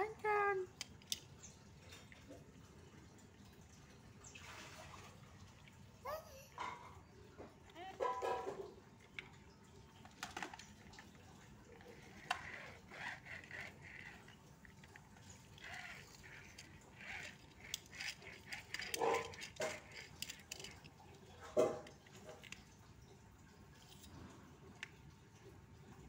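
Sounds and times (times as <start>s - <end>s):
plastic toy cars clicking: 0.7s - 1.4s, 10.0s - 22.7s.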